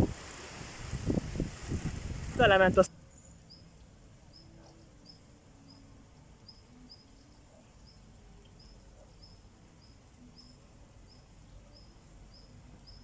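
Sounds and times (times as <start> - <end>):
steady low rumble: 0.0 - 2.9
cricket chirping: 8.6 - 13.0.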